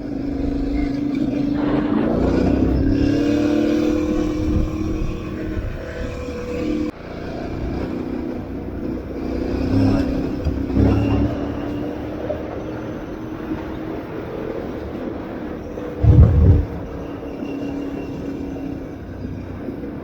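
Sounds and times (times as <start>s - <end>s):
rushing noise: 1.6s - 4.8s, 16.0s - 17.8s.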